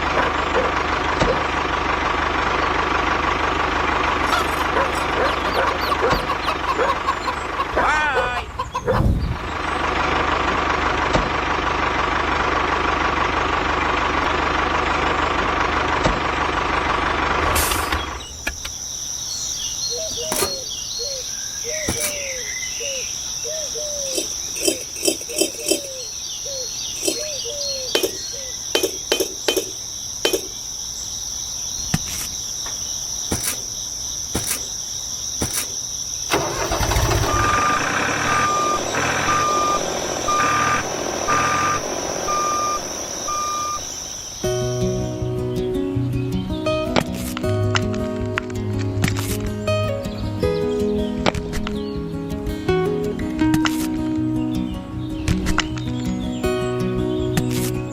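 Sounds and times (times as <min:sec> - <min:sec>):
insect drone: 0:16.2 - 0:47.4
short falling chirps: 0:35.4 - 0:44.9
motor running: 0:36.3 - 0:44.9.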